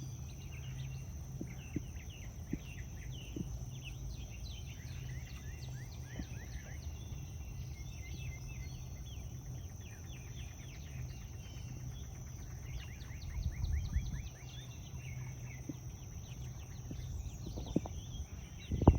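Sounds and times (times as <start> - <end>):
high insect drone: 0.0 - 18.9
birds chirping: 12.7 - 18.9
low wind rumble: 13.2 - 14.4, 15.9 - 18.9.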